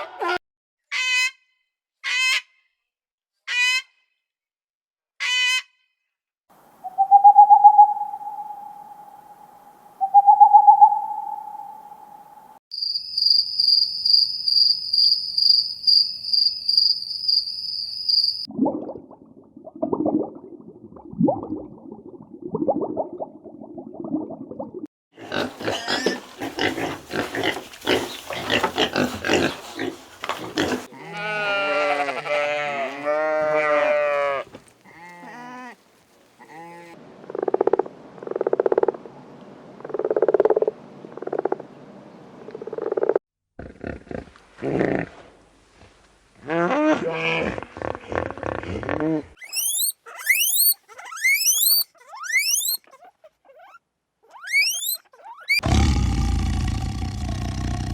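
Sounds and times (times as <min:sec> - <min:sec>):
evenly spaced low calls: 0:06.8 - 0:12.6, 0:49.4 - 0:52.8, 0:54.4 - 0:55.6
harsh animal calls: 0:25.2 - 0:35.8, 0:46.7 - 0:57.9
low grunting: 0:55.6 - 0:57.9.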